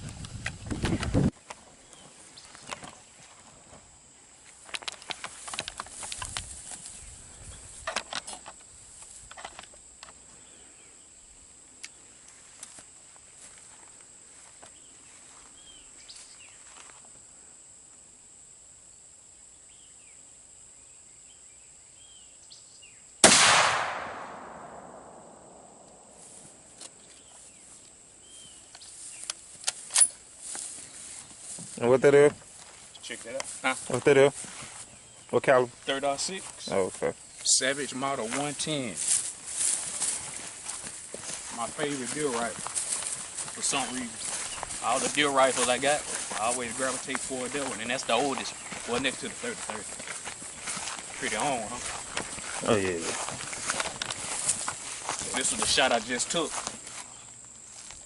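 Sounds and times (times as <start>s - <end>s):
rifle handling clicks and knocks: 4.6s - 6.5s, 7.8s - 10.2s
rifle shot: 23.2s - 26.1s.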